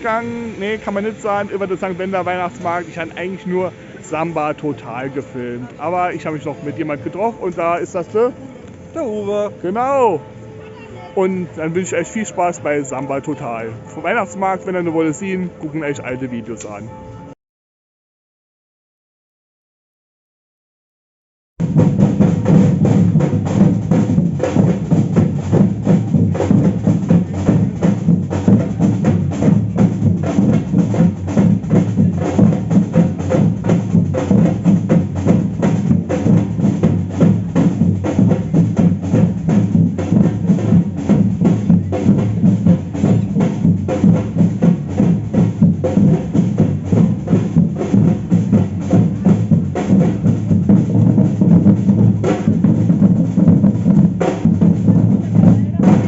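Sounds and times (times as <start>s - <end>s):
samba percussion band: 0.0s - 8.4s, 21.6s - 56.0s
deep bass drums: 21.6s - 56.0s.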